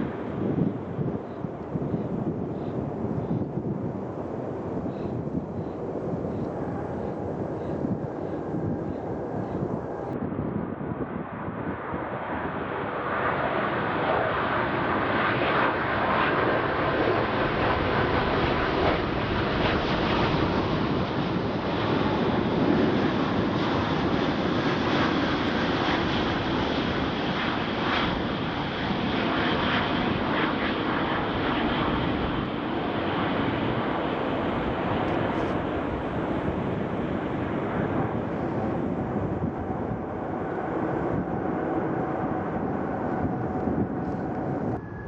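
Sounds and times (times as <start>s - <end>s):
jet engines roaring: 0.0s - 45.0s.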